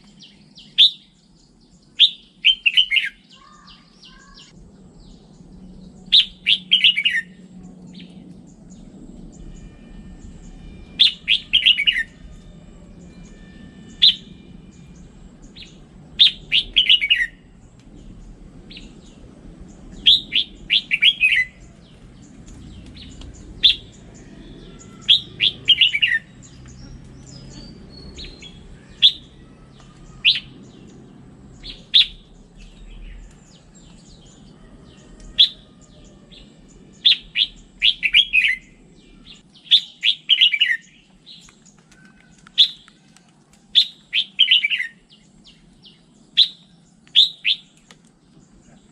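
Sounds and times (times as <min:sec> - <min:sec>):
bulbul singing: 0:00.0 - 0:43.0, 0:43.7 - 0:48.9.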